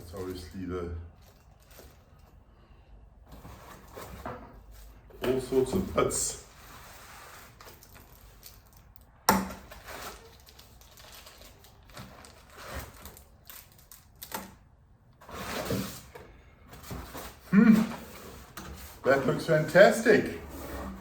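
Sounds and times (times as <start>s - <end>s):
packaging rustling: 1.2s - 2.4s, 7.4s - 14.6s.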